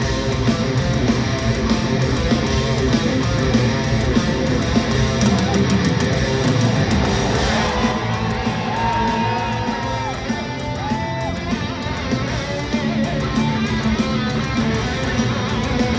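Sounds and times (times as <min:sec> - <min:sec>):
distorted electric guitar lead: 0:00.0 - 0:15.9
heavy metal band playing live: 0:00.0 - 0:15.9.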